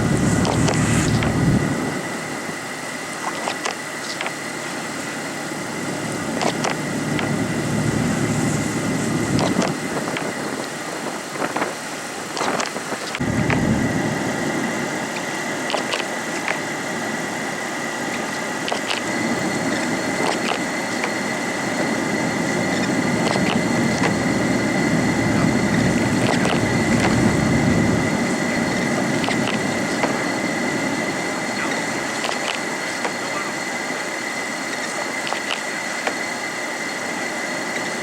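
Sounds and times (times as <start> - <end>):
car engine with road noise: 0.0 - 1.9, 5.9 - 9.8, 13.2 - 14.9.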